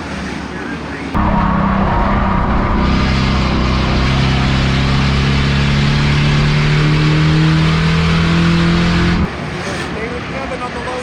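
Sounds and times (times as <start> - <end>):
race car engine revving: 1.2 - 9.3.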